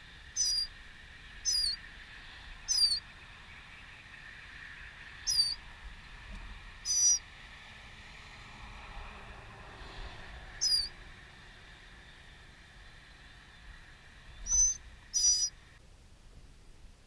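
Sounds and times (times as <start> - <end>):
bird call sliding downward: 0.4 - 0.7, 1.4 - 1.8, 2.7 - 3.0, 5.2 - 5.6, 6.8 - 7.2, 10.6 - 10.9, 14.4 - 15.5
faint steady hiss: 9.4 - 17.0.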